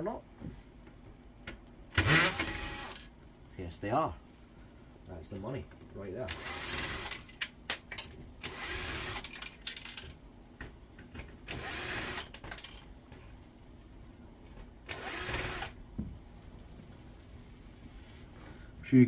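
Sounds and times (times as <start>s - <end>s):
power drill running: 2.0s - 3.1s, 6.3s - 7.3s, 8.4s - 9.4s, 11.5s - 12.4s, 14.9s - 15.8s.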